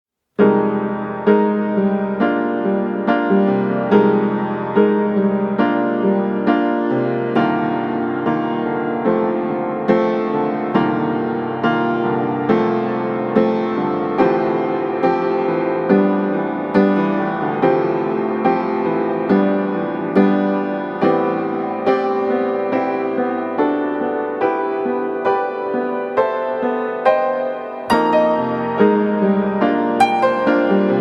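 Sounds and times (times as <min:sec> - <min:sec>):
slow gentle piano music: 0:00.4 - 0:31.0.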